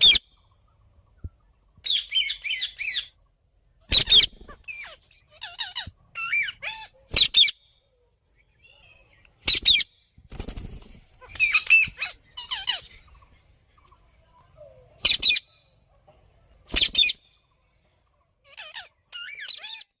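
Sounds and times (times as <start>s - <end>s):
parakeet chattering chirps: 11.2s - 13.2s.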